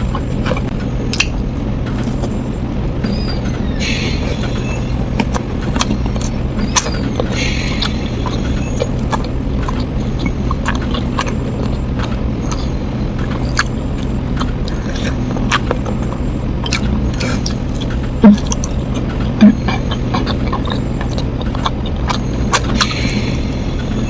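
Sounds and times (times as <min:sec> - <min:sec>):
low hum: 0:00.0 - 0:24.0
chewing crispy snacks: 0:05.2 - 0:23.7.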